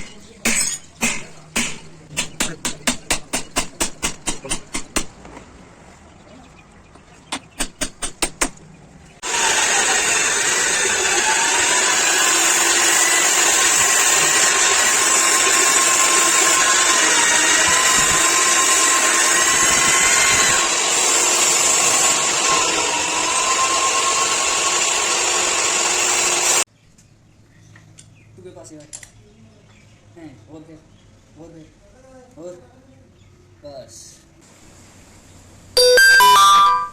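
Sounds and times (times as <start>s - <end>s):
electric power tool whining: 9.2s - 26.7s.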